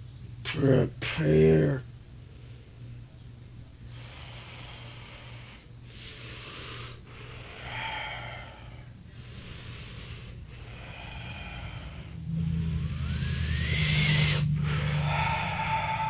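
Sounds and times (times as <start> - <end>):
steady low hum: 0.0 - 16.0
noisy breathing: 2.2 - 3.2, 3.8 - 16.0.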